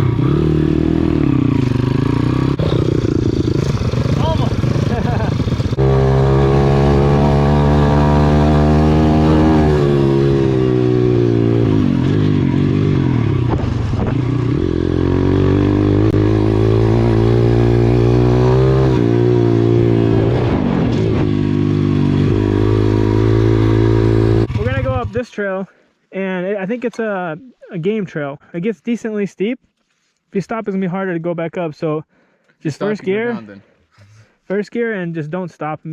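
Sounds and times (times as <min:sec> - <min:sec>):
motorbike engine revving: 0:00.0 - 0:25.2.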